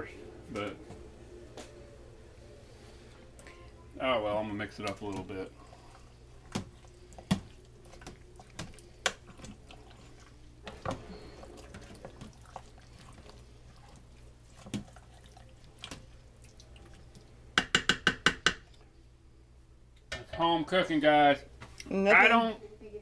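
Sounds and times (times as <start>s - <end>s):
spoon stirring stew: 2.7s - 18.9s
spoon knocking against pot: 17.6s - 18.7s.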